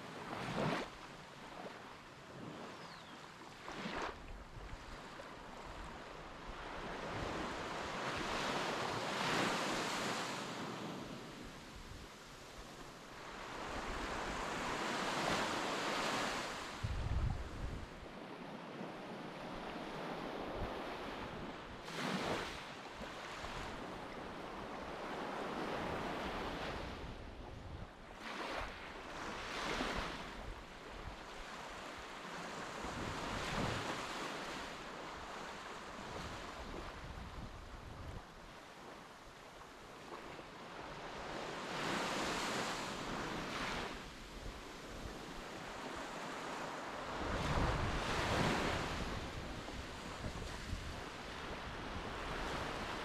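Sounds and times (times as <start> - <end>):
wind buffeting microphone: 16.8 - 18.0, 47.2 - 51.0.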